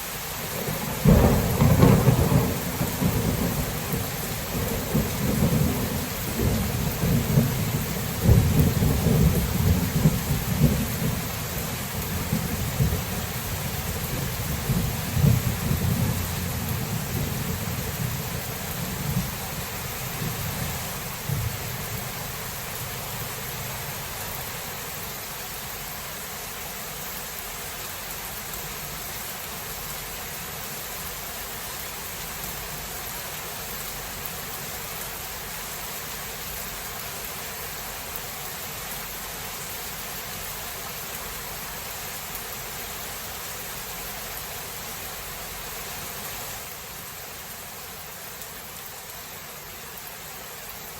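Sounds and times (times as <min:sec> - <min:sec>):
steady rain: 0:00.0 - 0:50.9
thunder rumbling: 0:00.6 - 0:24.0.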